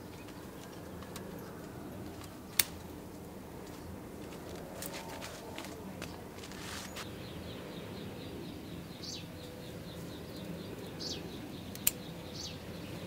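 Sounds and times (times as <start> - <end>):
birds chirping: 0.0 - 13.0
sharp click: 11.7 - 12.1.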